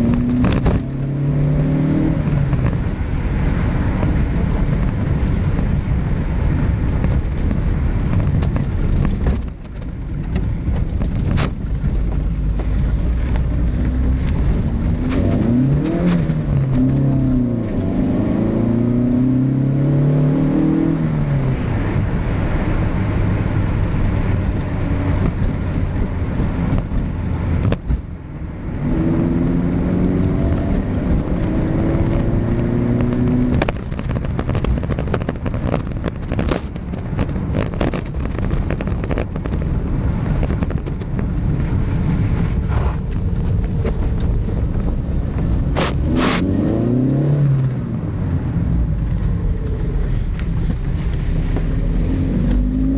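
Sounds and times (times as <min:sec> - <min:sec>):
car engine through exhaust: 0:00.0 - 0:52.9
rushing sound with crackles: 0:00.0 - 0:52.9.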